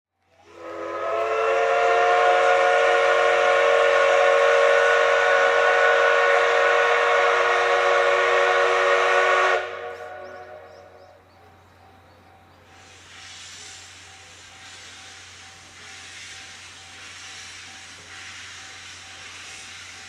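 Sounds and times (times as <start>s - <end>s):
steam locomotive whistle blast: 0.3s - 11.2s.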